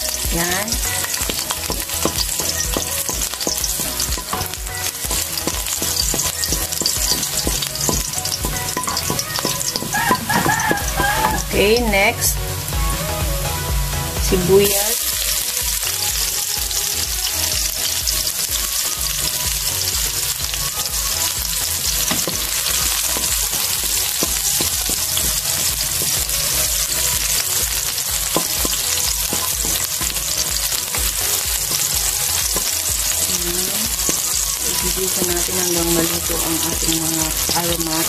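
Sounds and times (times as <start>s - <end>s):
onions sizzling in hot fat: 0.0s - 13.2s, 14.4s - 38.0s
wooden spatula knocking against wok: 1.2s - 11.6s, 28.2s - 32.8s.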